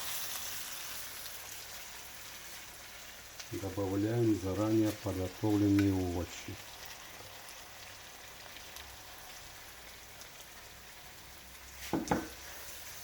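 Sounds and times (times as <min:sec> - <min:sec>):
food sizzling in a pan: 0:00.0 - 0:13.0
knock or clatter: 0:11.9 - 0:12.4.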